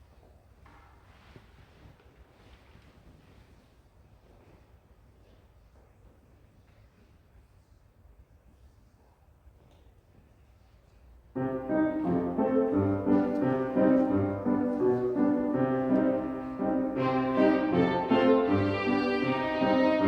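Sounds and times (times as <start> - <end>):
violin ensemble with piano: 11.4 - 20.0.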